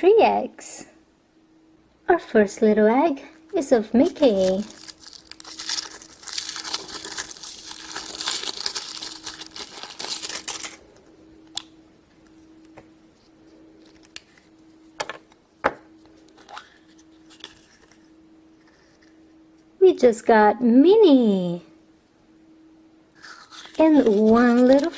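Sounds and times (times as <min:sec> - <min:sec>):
faint steady hum: 0:00.0 - 0:24.9
wrapper crinkling and tearing: 0:03.3 - 0:10.8, 0:16.4 - 0:18.0, 0:23.2 - 0:24.9.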